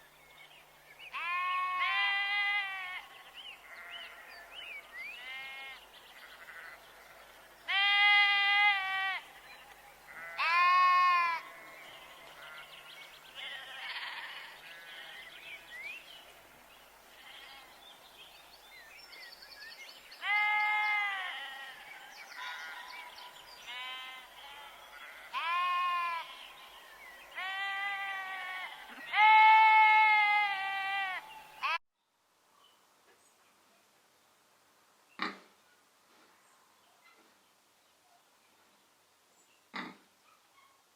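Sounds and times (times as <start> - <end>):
sheep bleating: 1.1 - 4.4, 5.2 - 9.4, 10.1 - 12.7, 13.4 - 15.4, 17.2 - 17.7, 20.2 - 21.9, 23.7 - 26.7, 27.3 - 31.8.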